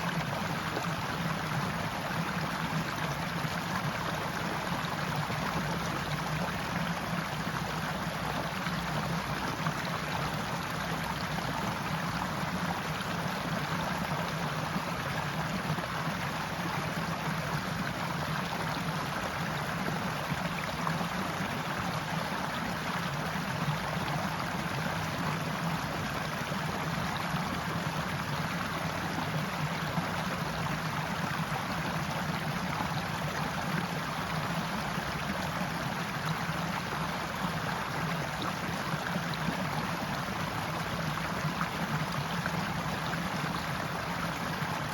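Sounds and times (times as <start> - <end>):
stream rushing over rocks: 0.0 - 44.9.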